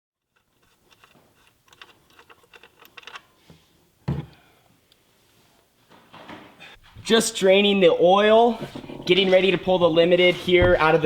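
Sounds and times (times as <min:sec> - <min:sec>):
heavy thump: 0:10.5 - 0:11.0.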